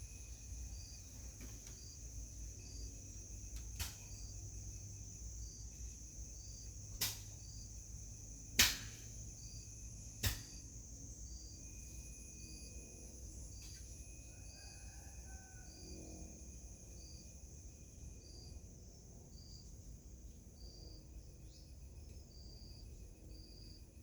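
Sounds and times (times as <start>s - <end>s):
crickets droning and chirping: 0.0s - 24.0s
sharp snaps: 3.6s - 4.2s, 6.9s - 7.4s, 8.6s - 9.1s, 10.2s - 10.6s.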